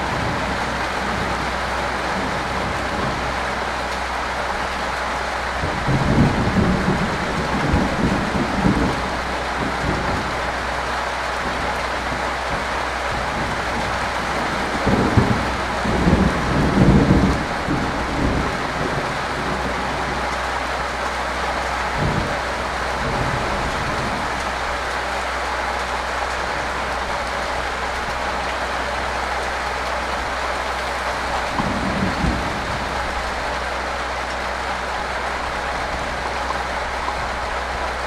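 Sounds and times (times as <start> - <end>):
low rumbles: 0.0 - 38.0
steady rain falling: 0.0 - 38.0.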